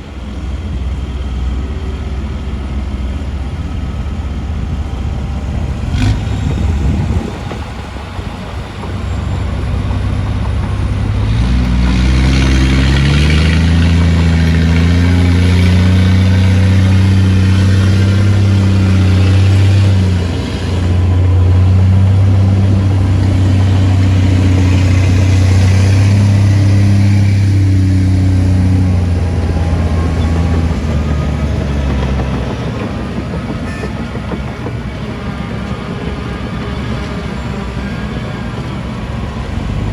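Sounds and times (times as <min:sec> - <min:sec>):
diesel machinery engine revving: 0:00.0 - 0:33.1, 0:39.0 - 0:39.9.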